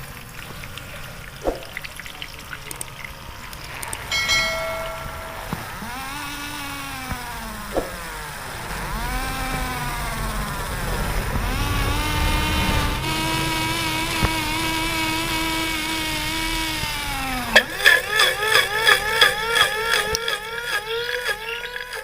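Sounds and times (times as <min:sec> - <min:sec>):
small motor whining: 0:02.5 - 0:22.0.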